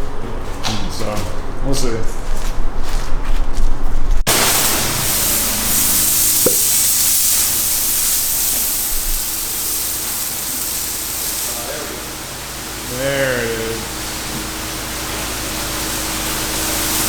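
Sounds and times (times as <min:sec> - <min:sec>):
pressure washer jet hissing: 0:04.3 - 0:17.0.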